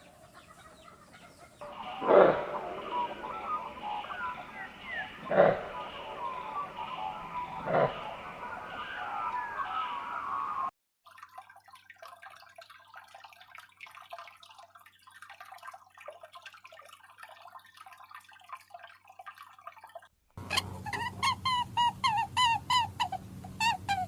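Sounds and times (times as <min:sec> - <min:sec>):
faint high chirping: 0:00.8 - 0:10.7
quick repeated animal calls: 0:01.6 - 0:09.0.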